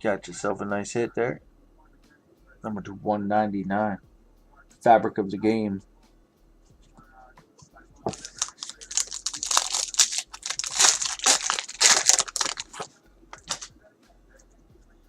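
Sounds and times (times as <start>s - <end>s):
wrapper tearing and crinkling: 8.1s - 13.7s.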